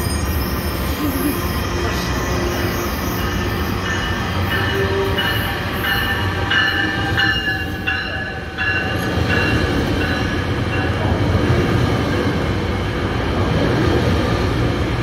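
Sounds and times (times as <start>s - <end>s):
train rumbling: 0.0s - 15.0s
bell ringing: 1.6s - 11.0s.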